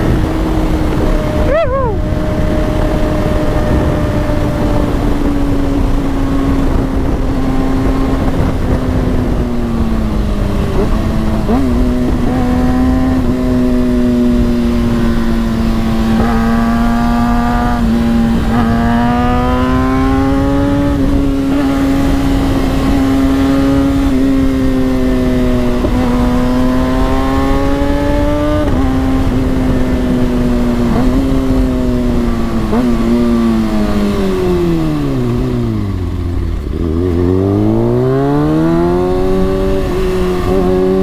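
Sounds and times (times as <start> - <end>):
motorcycle engine revving: 0.0 - 41.0
wind and road noise: 0.0 - 41.0.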